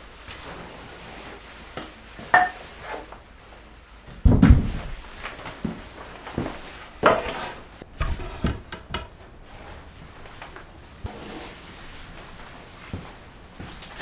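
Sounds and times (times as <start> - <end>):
wooden knocks and clatters: 7.9 - 9.2.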